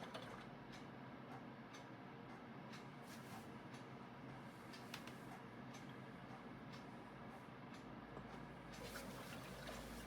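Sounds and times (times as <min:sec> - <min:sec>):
washing machine humming: 0:08.2 - 0:10.0.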